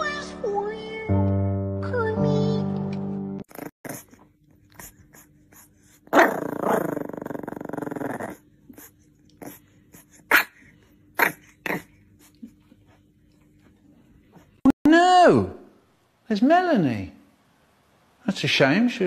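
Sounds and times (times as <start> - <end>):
dog growling: 3.5 - 12.6.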